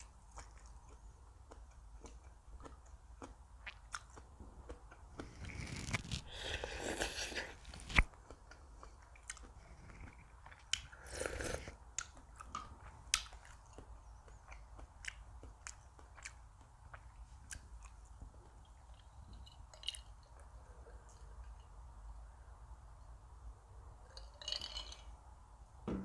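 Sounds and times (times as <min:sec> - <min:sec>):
chewing and crunching food: 0:00.0 - 0:21.9.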